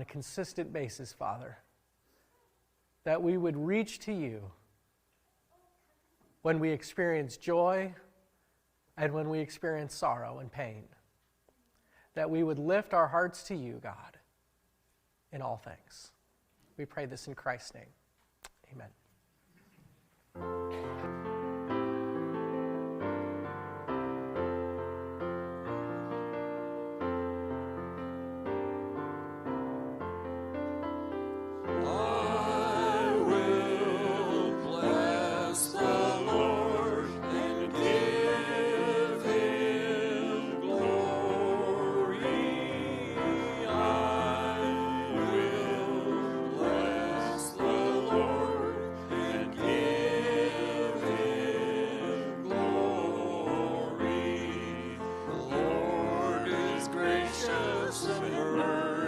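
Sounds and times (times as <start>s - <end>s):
keyboard playing: 20.4s - 59.0s
people singing: 31.6s - 59.0s.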